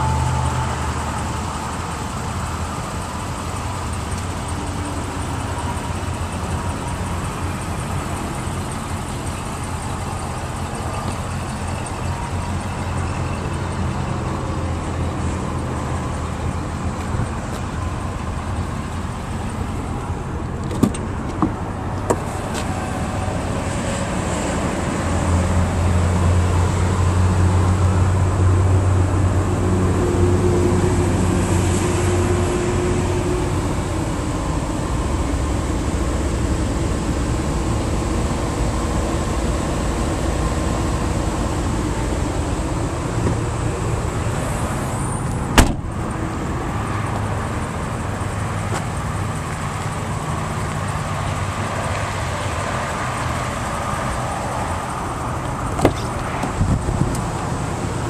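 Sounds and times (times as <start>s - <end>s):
engine idling: 0.0s - 24.3s.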